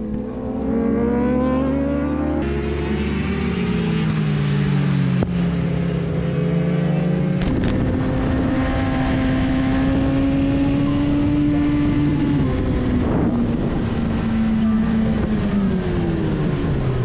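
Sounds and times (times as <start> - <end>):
motorcycle engine running: 7.3 - 8.6.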